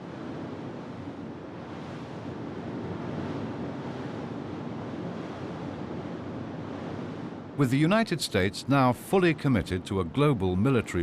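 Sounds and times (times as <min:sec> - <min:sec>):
sea rushing: 0:00.0 - 0:11.0
wind: 0:00.0 - 0:11.0.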